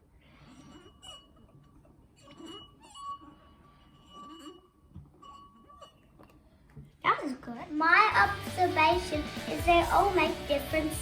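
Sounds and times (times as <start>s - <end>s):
singing glass rim ringing: 4.0s - 6.1s.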